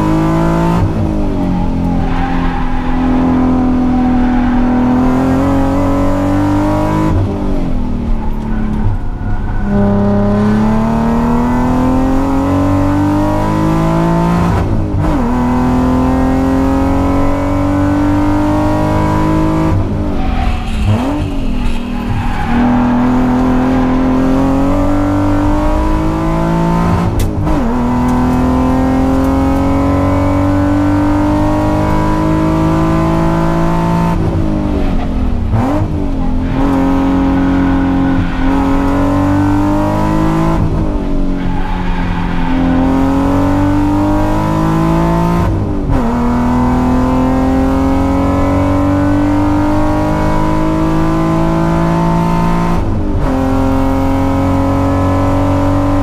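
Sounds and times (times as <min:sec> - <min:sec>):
car engine revving through gears: 0:00.0 - 0:56.0.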